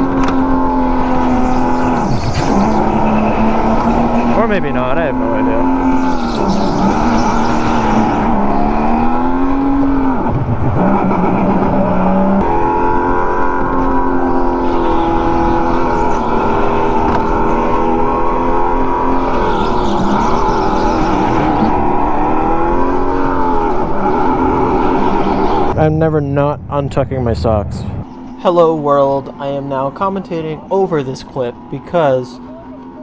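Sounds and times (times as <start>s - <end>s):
go-kart motor whining: 0.0s - 25.8s.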